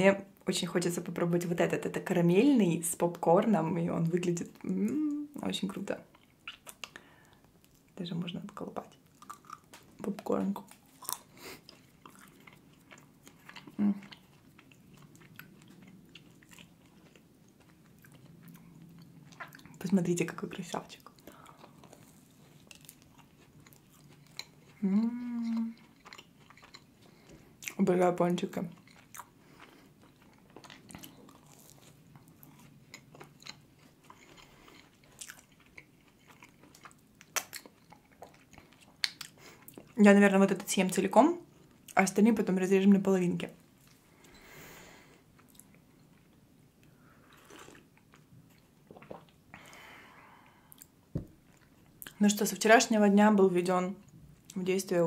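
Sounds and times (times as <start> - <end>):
chewing popcorn: 5.8 - 40.0, 45.2 - 49.4
wet mouth clicks: 6.4 - 7.0, 39.0 - 39.8.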